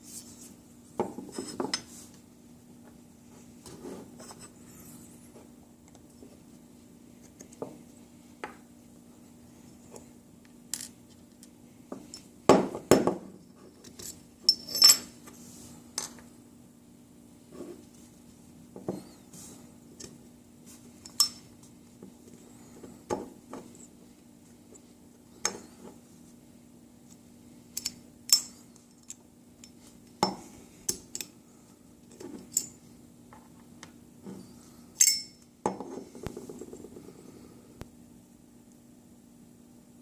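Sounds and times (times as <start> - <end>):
faint hum: 0.0 - 40.0.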